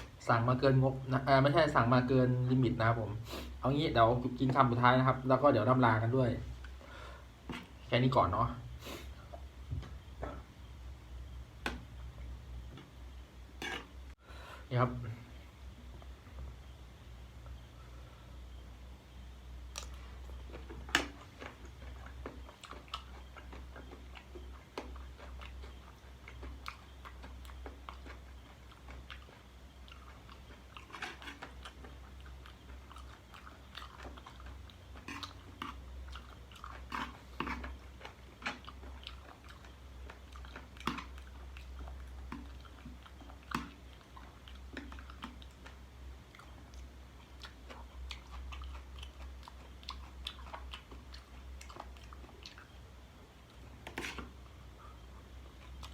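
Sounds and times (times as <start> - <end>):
person chewing crunchy food: 19.7 - 55.9.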